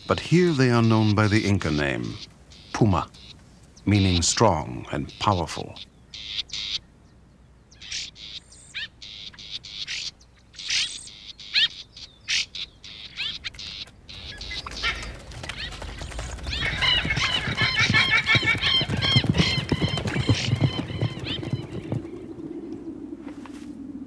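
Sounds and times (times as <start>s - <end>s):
bird chattering: 0.0s - 6.8s, 7.7s - 22.2s
birds chirping: 0.0s - 23.2s.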